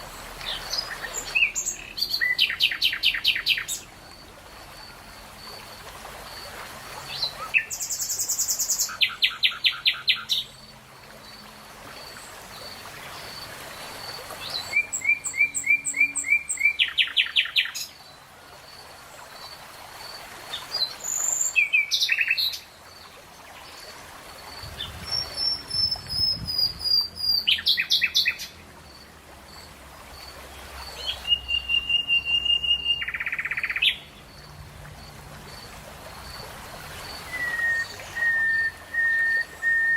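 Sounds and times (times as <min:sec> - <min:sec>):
songbird whistling and trilling: 0:14.7 - 0:17.8, 0:31.1 - 0:34.0, 0:37.3 - 0:39.9.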